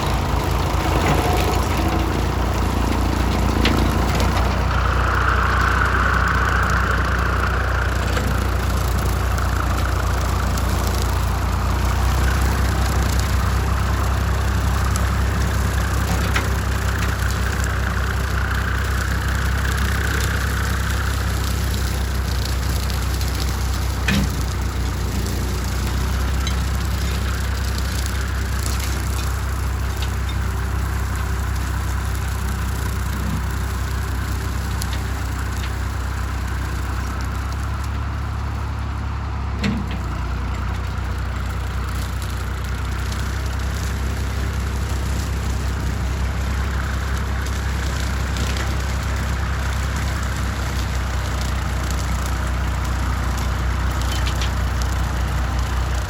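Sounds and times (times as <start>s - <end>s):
tractor engine under load: 0.0s - 56.0s.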